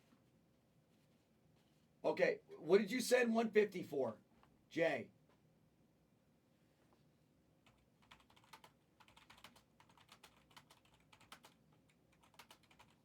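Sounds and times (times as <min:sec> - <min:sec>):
typing on computer keyboard: 0:07.6 - 0:13.0.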